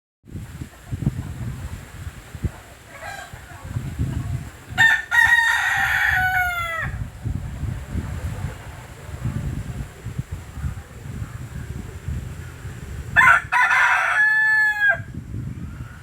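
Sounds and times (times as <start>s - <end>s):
wind rumble on microphone: 0.3s - 16.0s
rooster crowing: 2.9s - 3.4s, 4.8s - 7.0s, 13.2s - 15.2s.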